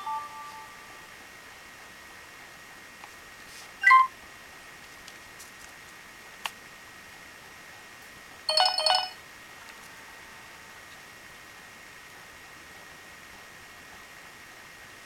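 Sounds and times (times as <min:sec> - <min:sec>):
steady low hiss: 0:00.0 - 0:03.8.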